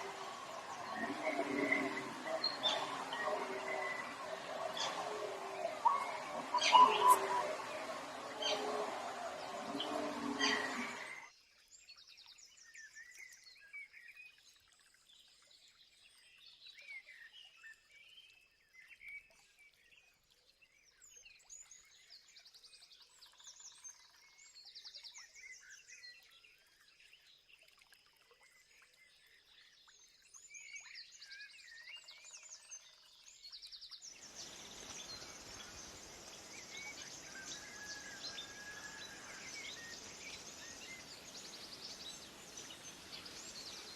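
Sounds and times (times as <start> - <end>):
noisy burst: 0.0 - 11.2
steady hiss: 0.0 - 11.2, 34.2 - 43.9
small birds chirping and trilling: 0.0 - 11.3, 34.1 - 43.9.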